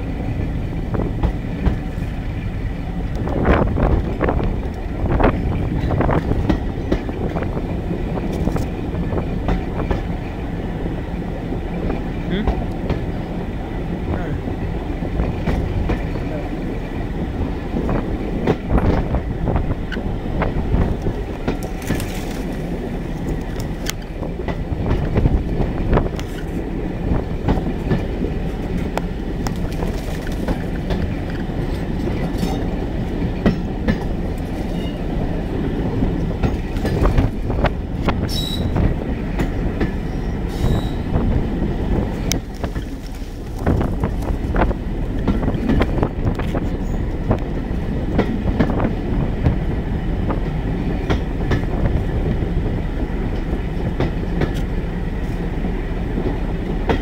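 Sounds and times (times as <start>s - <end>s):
train wheels rumbling on track: 0.0s - 57.0s
high wheel squeals: 38.3s - 38.8s, 40.0s - 41.1s.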